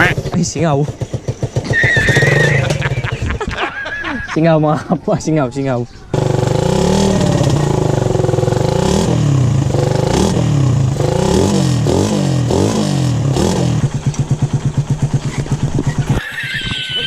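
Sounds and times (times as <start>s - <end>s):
person speaking: 0.0s - 0.9s
motorcycle engine revving: 0.0s - 3.4s, 6.1s - 16.2s.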